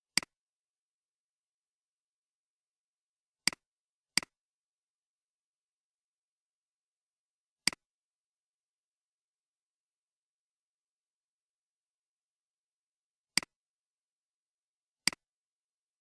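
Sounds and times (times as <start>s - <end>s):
computer mouse clicks: 0.1s - 0.4s, 4.2s - 4.4s, 15.1s - 15.3s.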